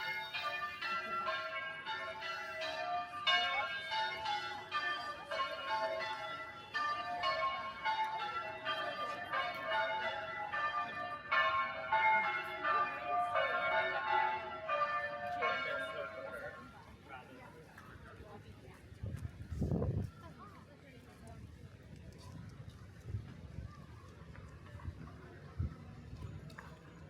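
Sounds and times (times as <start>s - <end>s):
church bells ringing changes: 0.0s - 16.7s.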